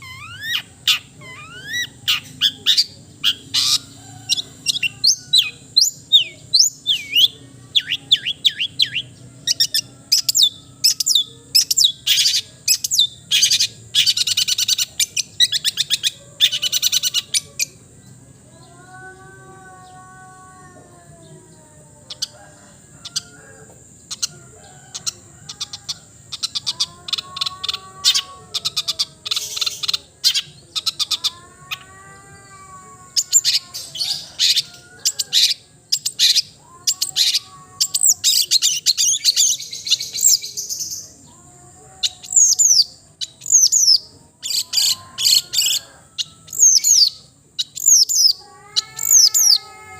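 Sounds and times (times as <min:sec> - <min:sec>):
bird chattering and whistling: 0:00.0 - 0:17.8, 0:24.0 - 0:31.9, 0:33.1 - 0:41.2, 0:42.0 - 0:49.7.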